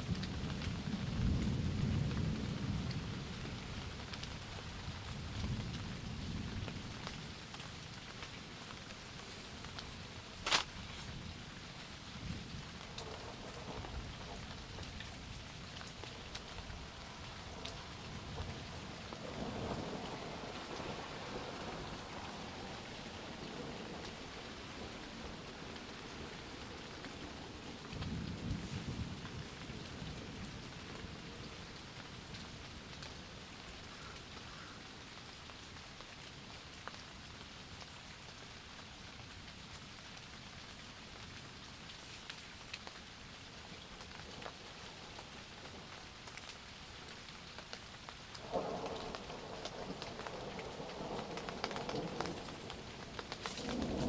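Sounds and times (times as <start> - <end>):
thunder rumbling: 0.0 - 31.2, 48.4 - 54.0
steady rain: 0.0 - 54.0
raindrop taps: 43.8 - 54.0.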